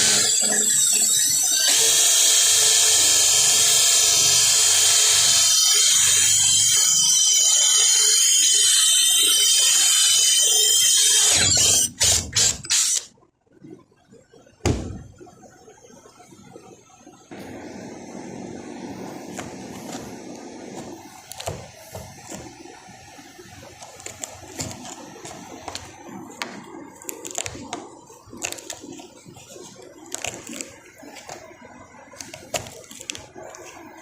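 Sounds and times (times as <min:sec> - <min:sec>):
power tool whining: 0:00.0 - 0:13.0.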